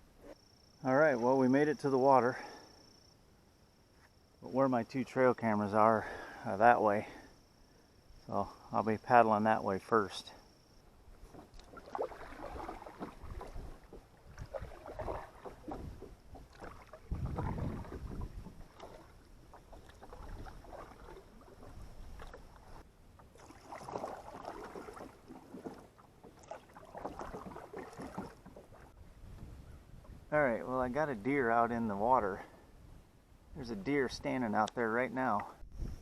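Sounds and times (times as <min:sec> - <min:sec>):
paddle splashing through water: 0:11.1 - 0:29.0.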